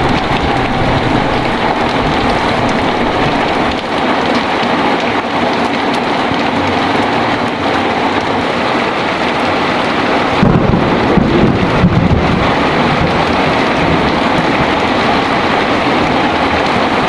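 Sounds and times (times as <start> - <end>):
thunder rumbling: 0.0 - 4.6, 9.2 - 17.0
heavy rain: 0.0 - 17.0.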